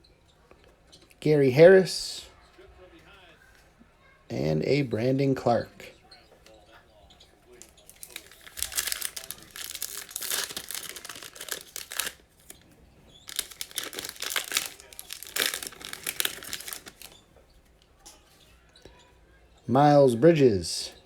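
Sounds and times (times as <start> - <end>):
plastic wrappers tearing and crinkling: 7.6 - 17.2.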